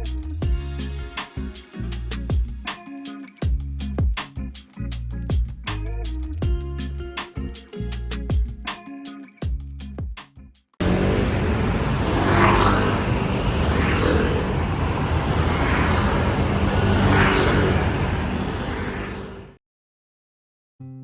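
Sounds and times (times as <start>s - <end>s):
city road traffic noise: 10.8s - 19.6s
vehicles passing by: 10.8s - 19.6s.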